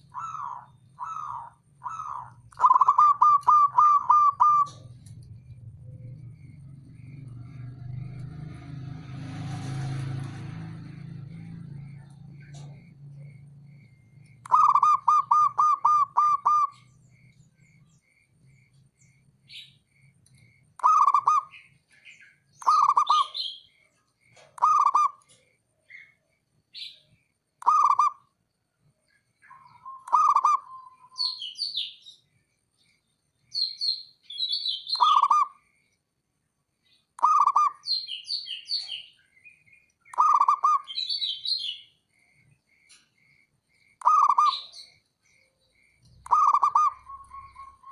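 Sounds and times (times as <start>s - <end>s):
dove cooing: 0.0s - 7.7s, 13.9s - 16.9s, 20.8s - 21.6s, 22.6s - 23.5s, 24.3s - 25.4s, 27.6s - 28.2s, 29.5s - 31.3s, 37.2s - 37.8s, 40.1s - 41.0s, 44.0s - 45.6s, 46.2s - 47.9s
small bird chirping: 0.0s - 47.9s.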